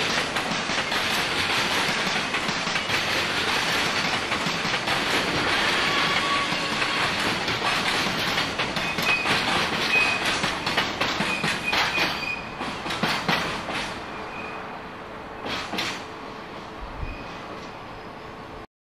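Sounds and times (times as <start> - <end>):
train wheels clicking over rail joints: 0.0 - 14.2, 15.4 - 16.1
high wheel squeals: 5.5 - 7.4, 8.8 - 10.4, 11.2 - 12.6, 14.1 - 14.7, 17.0 - 18.4.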